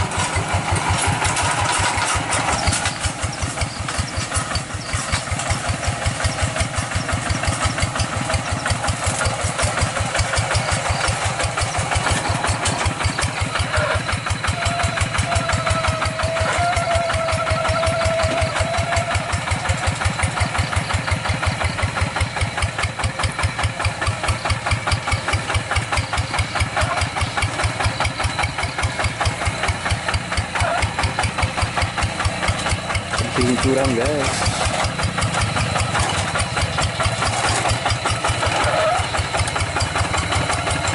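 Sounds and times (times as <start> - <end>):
diesel engine chugging: 0.0 - 40.9.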